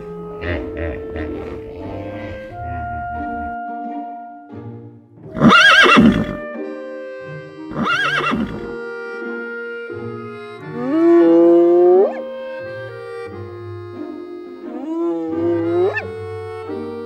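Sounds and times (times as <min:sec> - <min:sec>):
soft background music: 0:00.0 - 0:17.0
horse whinnying: 0:05.3 - 0:06.4, 0:07.7 - 0:08.7, 0:14.8 - 0:16.1.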